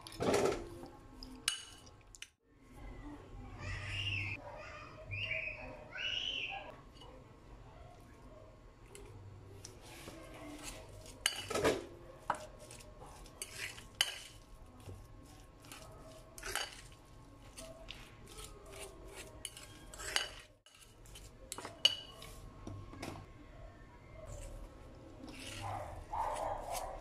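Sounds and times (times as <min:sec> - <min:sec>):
metal utensil scraping ceramic bowl: 0:10.4 - 0:22.4, 0:25.2 - 0:27.0.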